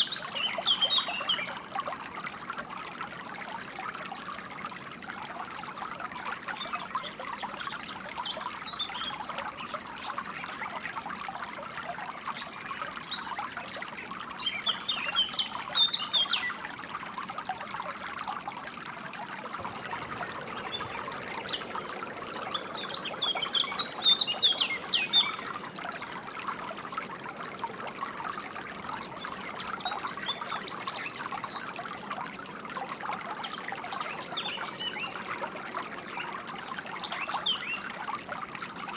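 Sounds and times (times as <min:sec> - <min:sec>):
water trickling over stones: 0:00.0 - 0:38.9
small birds chirping: 0:19.6 - 0:25.6.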